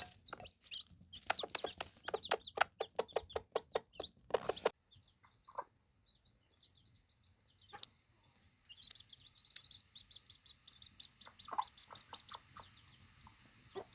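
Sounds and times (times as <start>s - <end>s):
hens clucking: 0.0s - 5.8s, 10.9s - 13.9s
chicks peeping: 0.0s - 13.9s.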